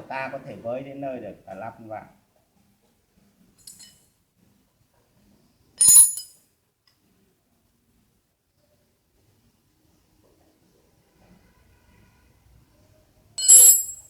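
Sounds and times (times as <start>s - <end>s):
steel parts clinking: 3.6s - 4.0s, 5.8s - 6.3s, 13.4s - 14.0s.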